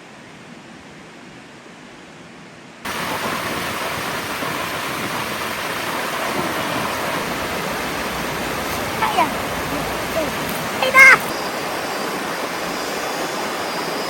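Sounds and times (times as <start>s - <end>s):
creek water rushing: 2.9s - 14.0s.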